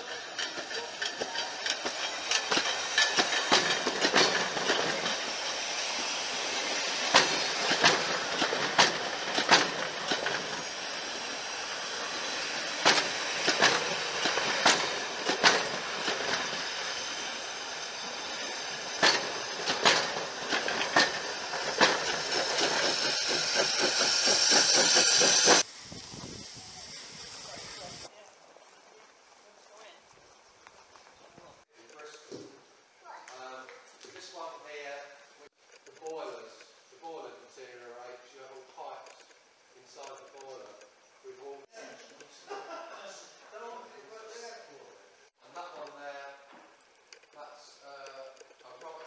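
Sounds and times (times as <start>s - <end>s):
steady rumble of carriages: 0.0s - 5.9s, 6.8s - 25.7s
train wheels clicking over rail joints: 0.0s - 25.7s, 48.0s - 49.0s
steam locomotive hiss: 0.0s - 28.1s.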